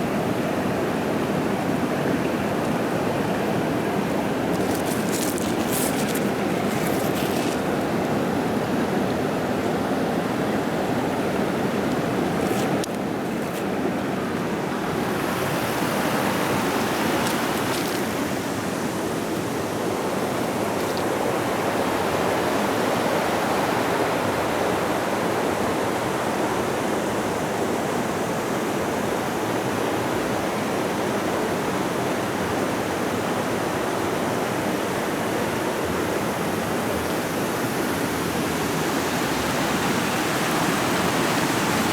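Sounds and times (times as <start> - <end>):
creek water rushing over rocks: 0.0 - 41.9.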